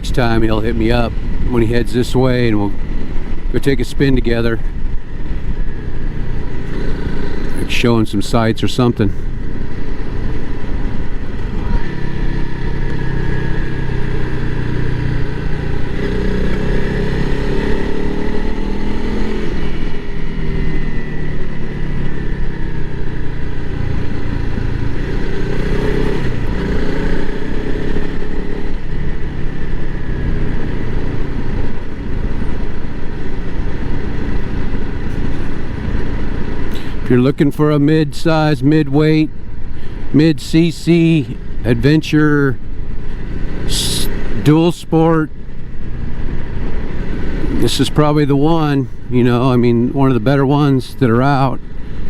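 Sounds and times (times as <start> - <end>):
motorcycle engine running: 0.0 - 52.0
wind and road noise: 0.0 - 52.0.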